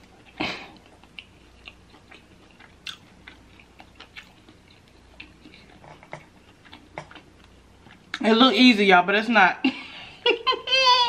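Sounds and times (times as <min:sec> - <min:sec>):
close-miked chewing: 0:00.0 - 0:08.2.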